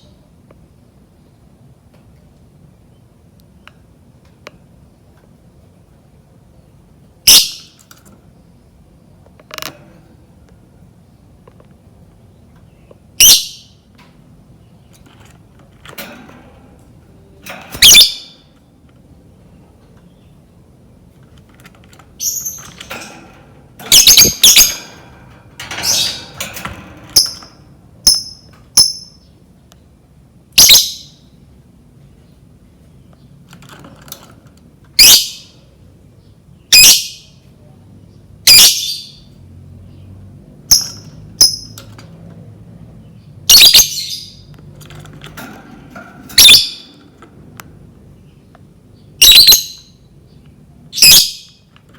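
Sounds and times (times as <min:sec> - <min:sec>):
lovebird shrill calls: 0:13.2 - 0:13.7, 0:17.8 - 0:18.4, 0:23.9 - 0:24.8, 0:30.6 - 0:31.2, 0:35.0 - 0:35.4, 0:43.5 - 0:44.3, 0:46.4 - 0:46.9, 0:49.2 - 0:49.9, 0:51.0 - 0:51.5.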